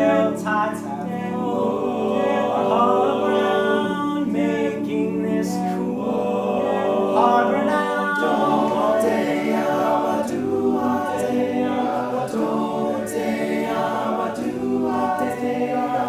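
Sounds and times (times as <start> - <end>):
choir singing a cappella: 0.0 - 16.0.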